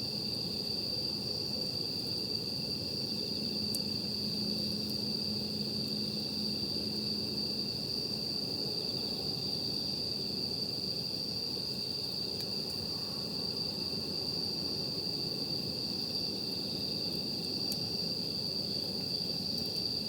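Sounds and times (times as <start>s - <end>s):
night insects trilling: 0.0s - 20.0s
campfire crackle: 17.0s - 20.0s.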